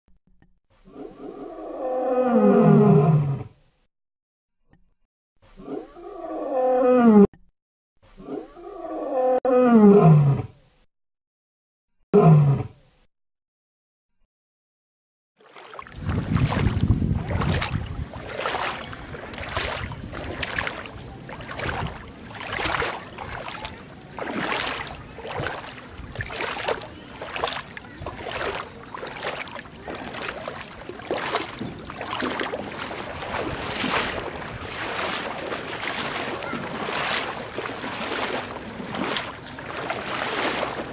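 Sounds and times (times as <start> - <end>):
lion roaring: 0.9 - 3.5
water rushing and splashing: 15.4 - 40.9.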